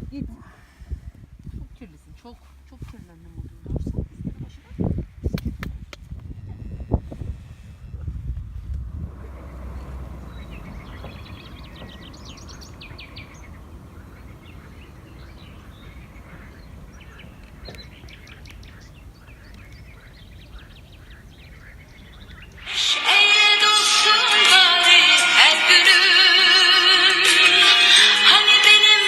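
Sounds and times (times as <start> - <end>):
low background rumble: 0.0 - 22.7
small birds singing: 6.0 - 23.8.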